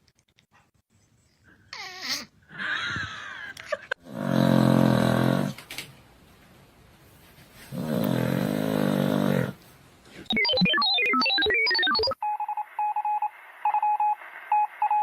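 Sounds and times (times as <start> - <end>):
pulsing beep tone: 10.3 - 15.0.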